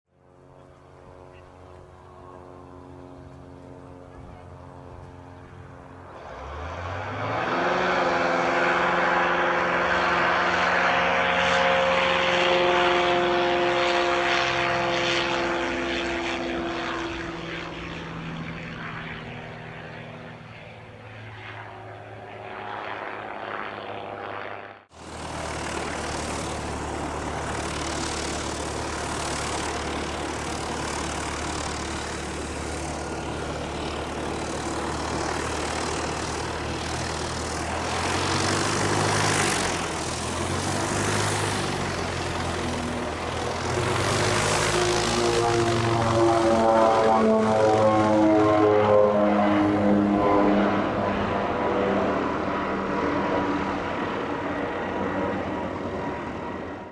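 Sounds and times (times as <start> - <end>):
propeller aircraft engine: 0.1 - 56.9
twin turboprops running: 0.1 - 56.9.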